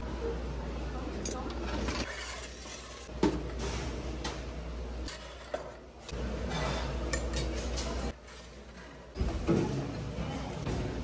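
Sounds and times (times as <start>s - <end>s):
dishes and cutlery clattering: 6.4s - 8.2s.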